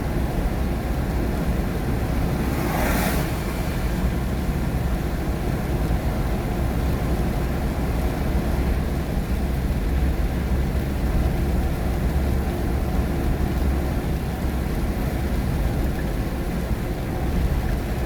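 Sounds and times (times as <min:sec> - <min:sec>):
engine and tyre rumble: 0:00.0 - 0:18.0
rain on car: 0:00.0 - 0:18.0
tyres hissing on wet road: 0:00.4 - 0:09.2.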